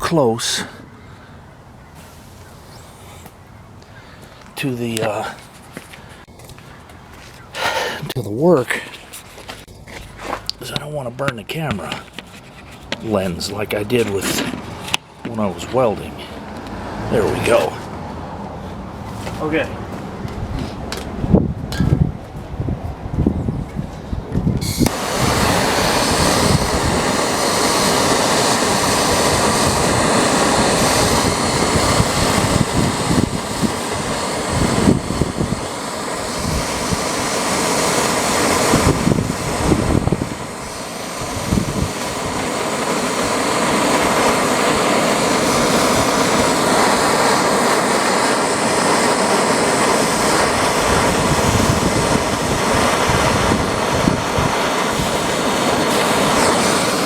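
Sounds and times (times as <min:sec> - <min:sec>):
gas torch flame hissing: 0:17.1 - 0:17.7, 0:24.6 - 0:57.0.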